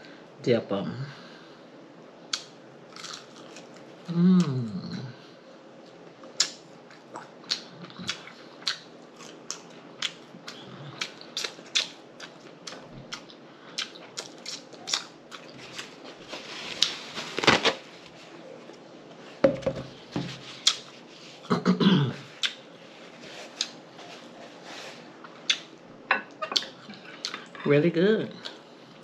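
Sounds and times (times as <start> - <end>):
wet chewing and lip smacks: 6.4 - 15.6.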